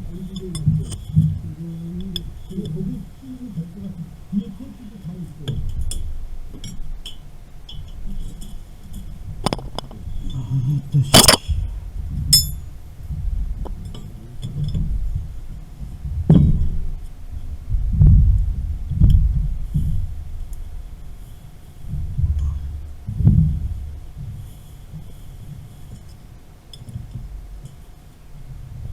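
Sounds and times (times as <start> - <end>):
low thumps and handling noise: 0.0 - 28.9
metal tools and pipe fittings clanking: 12.3 - 12.6.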